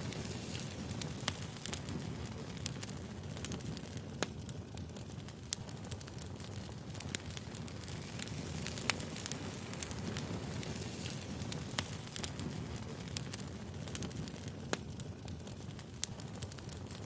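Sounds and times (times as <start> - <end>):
fire crackles and pops: 0.0 - 17.0
flames rumbling: 0.0 - 17.0.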